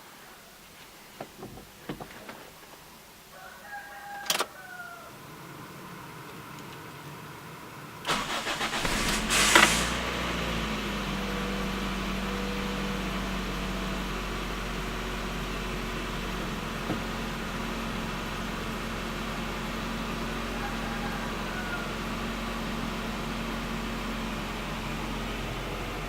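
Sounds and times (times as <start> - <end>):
car engine revving and idling: 5.2 - 26.0
starter motor cranking: 8.1 - 10.3.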